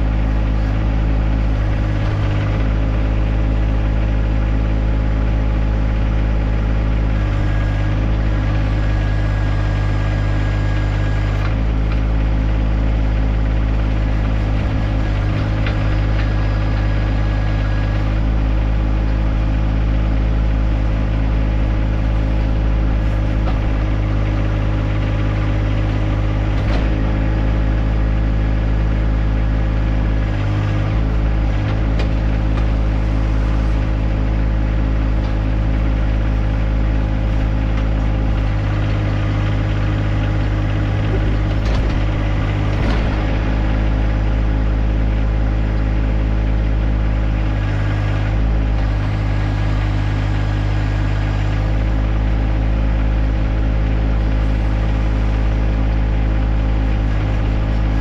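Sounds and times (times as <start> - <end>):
tractor diesel engine running: 0.0 - 58.0
sharp knocks: 39.6 - 44.2.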